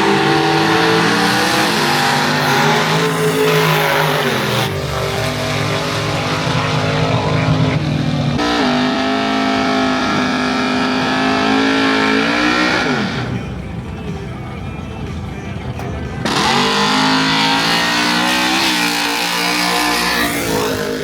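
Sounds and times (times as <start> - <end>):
racing engine at high revs: 0.0 - 13.6, 15.8 - 21.0.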